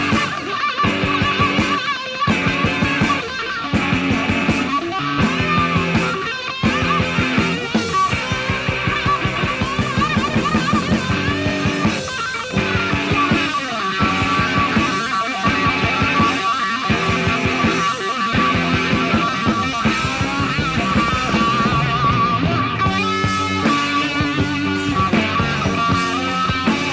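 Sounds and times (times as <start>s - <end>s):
electric guitar vibrato lead: 0.0s - 26.9s
hard rock band playing: 0.0s - 26.9s.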